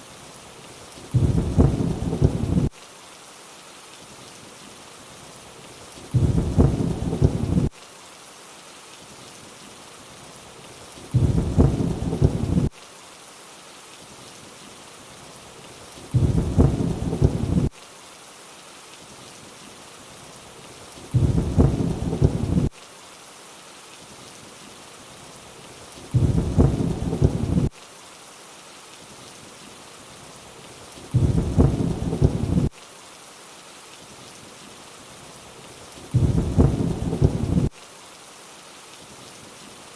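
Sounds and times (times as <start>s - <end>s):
steady rain: 0.0s - 39.9s
thunder rumble: 1.1s - 2.7s, 6.1s - 7.7s, 11.1s - 12.7s, 16.1s - 17.7s, 21.1s - 22.7s, 26.1s - 27.7s, 31.1s - 32.7s, 36.1s - 37.7s.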